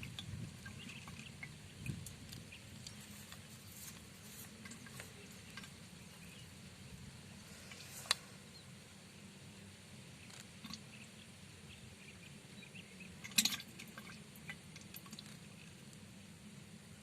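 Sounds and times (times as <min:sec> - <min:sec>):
small water drips: 0:00.0 - 0:06.4, 0:10.2 - 0:11.0, 0:13.1 - 0:16.1
low steady hum: 0:00.0 - 0:17.0.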